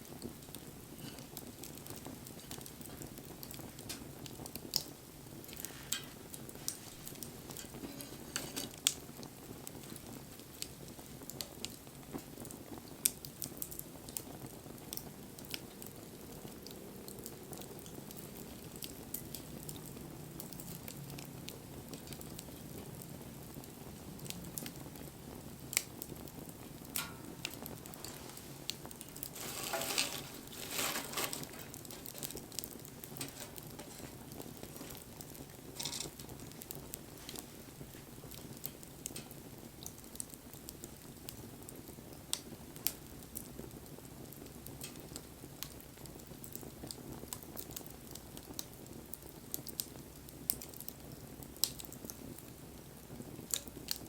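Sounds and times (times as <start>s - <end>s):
wood fire crackling: 0.0s - 54.0s
flame rushing: 0.3s - 10.7s, 25.3s - 39.4s.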